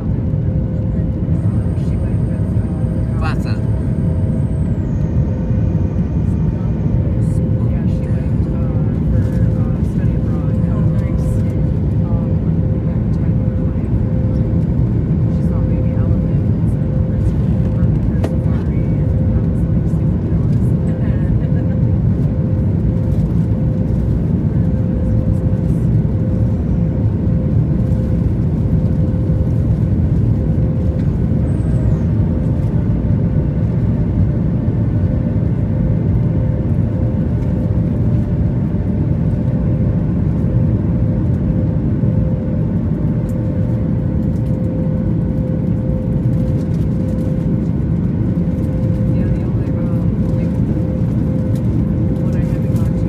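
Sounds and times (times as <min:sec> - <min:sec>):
airliner cabin engine rumble: 0:00.0 - 0:53.0
steady hum: 0:00.8 - 0:13.9.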